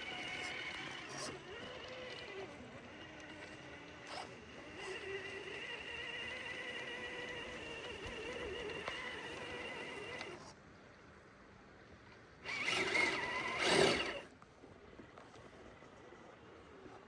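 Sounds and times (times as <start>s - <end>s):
electric motor whining: 0.0s - 10.4s, 12.5s - 14.3s.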